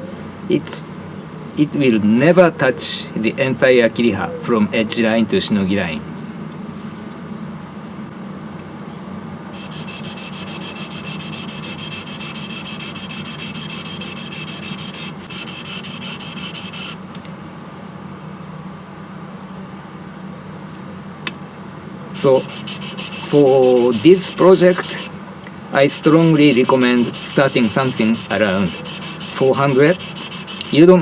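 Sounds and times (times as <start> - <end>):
knife blade rubbing on whetstone: 9.6 - 17.0, 22.2 - 25.1, 26.0 - 31.0
rhythmic rasp of sharpening strokes: 9.6 - 17.0, 22.2 - 25.1, 26.0 - 31.0.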